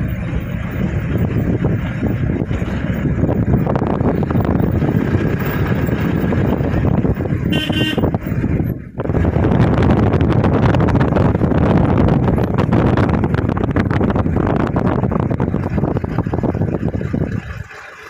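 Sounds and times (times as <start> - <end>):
vehicle horn toot: 7.4 - 8.2.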